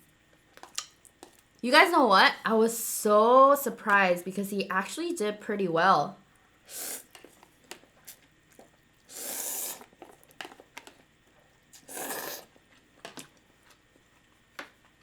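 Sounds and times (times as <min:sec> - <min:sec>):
wet chewing clicks: 0:00.6 - 0:01.5, 0:11.7 - 0:12.9
slurping noodles: 0:06.7 - 0:07.1, 0:09.0 - 0:10.1, 0:11.8 - 0:12.6.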